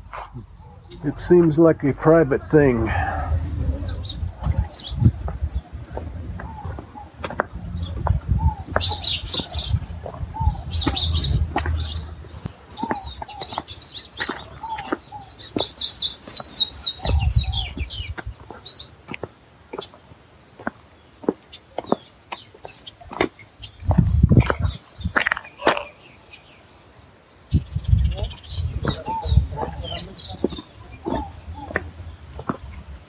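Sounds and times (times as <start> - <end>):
birds chirping and calling: 0.0 - 33.0
low rumble: 2.9 - 12.5.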